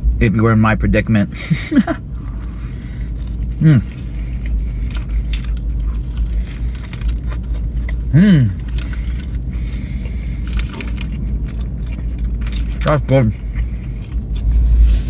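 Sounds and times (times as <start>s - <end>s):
car interior rumble: 0.0s - 15.0s
man chewing a sandwich: 1.3s - 15.0s
paper wrapping crinkling: 2.2s - 15.0s
man humming: 3.6s - 3.9s, 8.1s - 8.6s.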